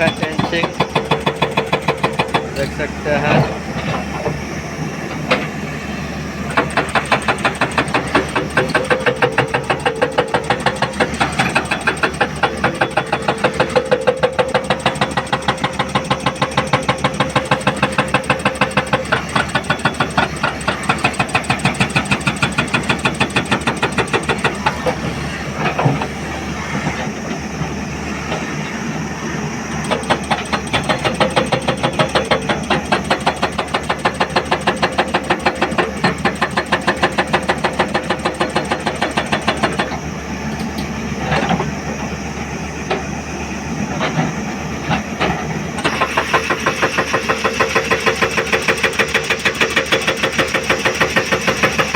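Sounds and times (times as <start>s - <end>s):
diesel engine running: 0.0s - 51.9s
hydraulic rock breaker hammering: 0.0s - 51.9s.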